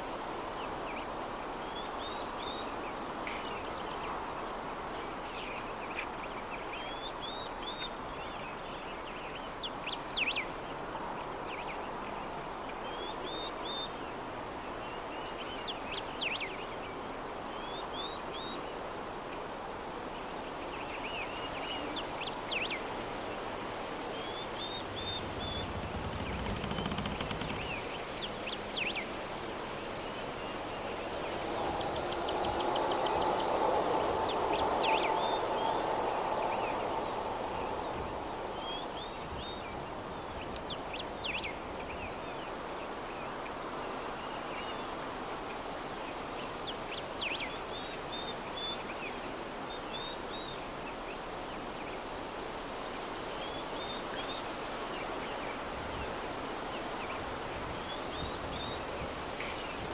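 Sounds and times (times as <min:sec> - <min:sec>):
soft breeze: 0:00.0 - 0:59.9
small birds chirping: 0:23.9 - 0:29.1.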